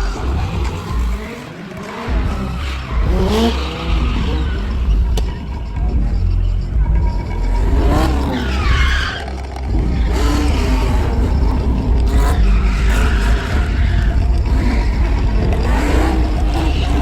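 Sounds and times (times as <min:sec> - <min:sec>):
car engines revving: 0:00.0 - 0:17.0
tyres squealing while drifting: 0:00.0 - 0:17.0.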